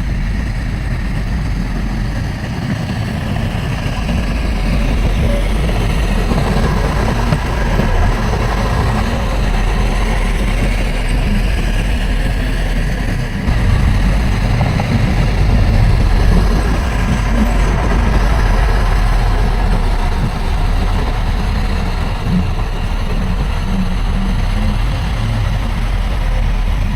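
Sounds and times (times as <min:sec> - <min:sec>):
heavy diesel engine under load: 0:00.0 - 0:26.9.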